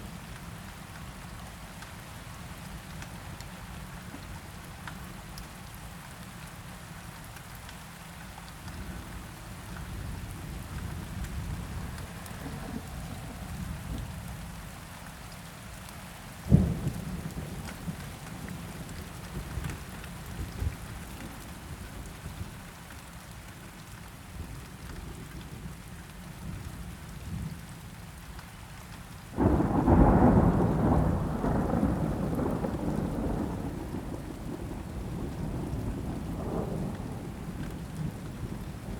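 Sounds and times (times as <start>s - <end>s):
steady rain: 0.0s - 38.9s
sharp thunderclap: 29.4s - 34.8s
distant thunder rolling: 29.4s - 38.9s.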